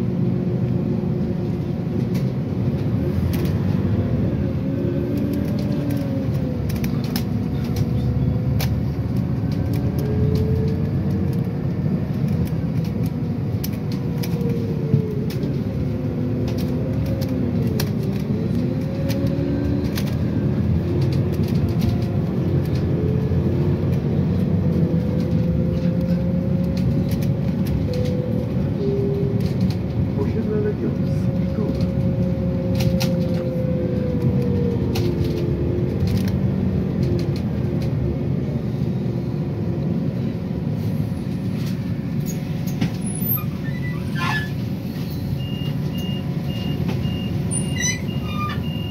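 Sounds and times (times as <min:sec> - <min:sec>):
bus engine rumble: 0:00.0 - 0:48.9
light rattles and clicks: 0:04.4 - 0:38.2.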